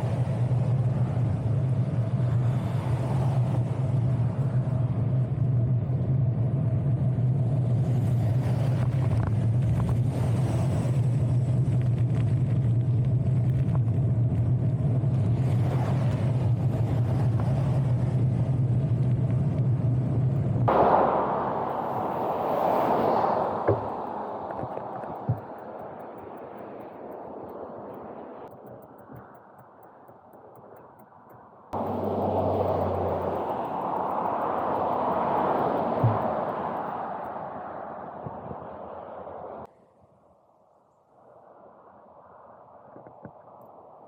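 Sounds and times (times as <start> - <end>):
wind noise on microphone: 0.0 - 39.7
faint clicks: 23.9 - 37.4.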